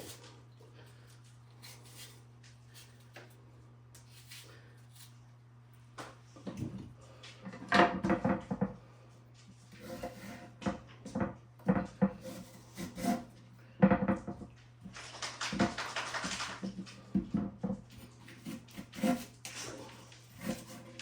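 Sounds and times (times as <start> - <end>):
knife scraping board: 9.7 - 10.8, 11.8 - 13.4, 17.9 - 21.0.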